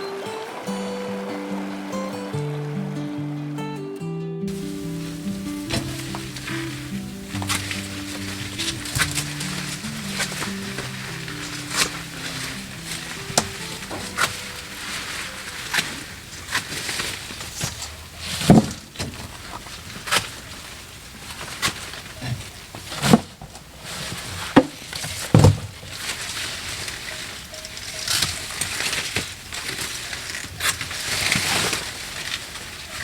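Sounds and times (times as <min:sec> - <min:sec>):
sharp knocks and snaps: 0:04.5 - 0:17.8.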